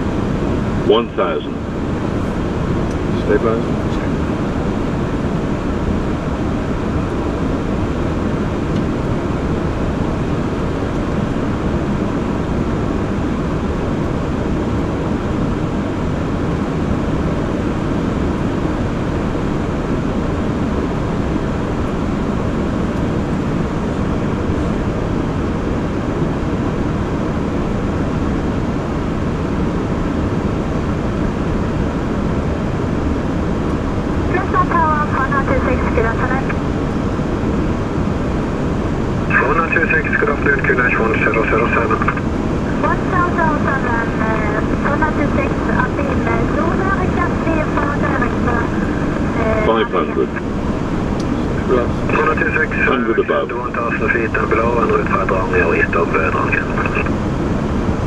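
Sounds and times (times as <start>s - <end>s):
aircraft engine noise: 0.0s - 58.0s
cockpit airflow: 27.9s - 58.0s.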